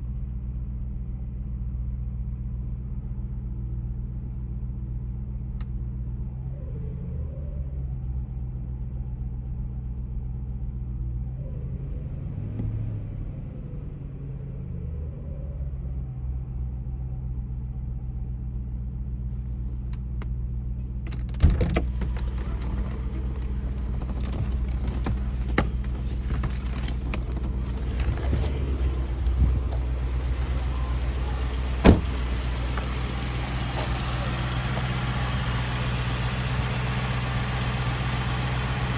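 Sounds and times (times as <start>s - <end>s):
car engine idling: 19.2s - 38.9s.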